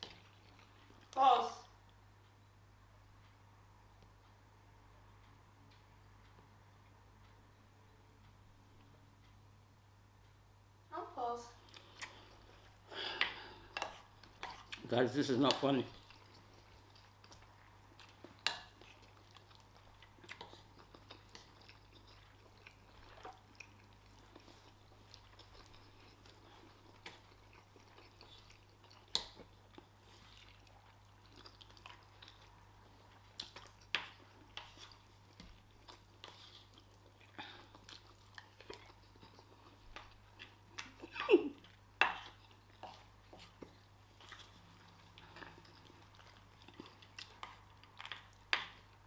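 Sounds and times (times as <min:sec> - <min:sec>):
person chewing and eating: 0:00.0 - 0:01.2, 0:11.6 - 0:49.0
faint steady hum: 0:00.0 - 0:49.0.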